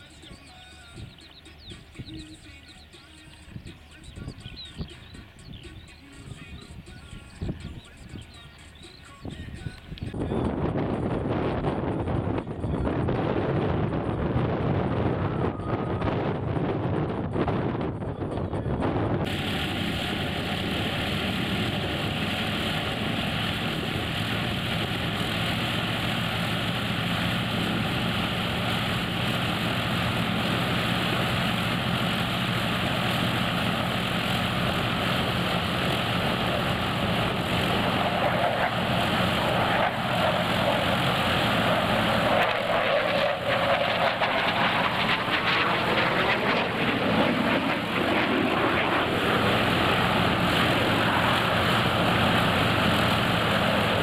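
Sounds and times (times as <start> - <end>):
propeller airplane flying past: 0.0 - 54.0.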